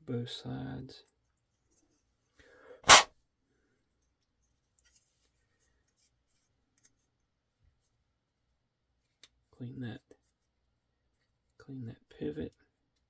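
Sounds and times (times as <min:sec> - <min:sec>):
person sneezing: 0:02.9 - 0:03.1
sharp intake of breath: 0:02.9 - 0:03.1.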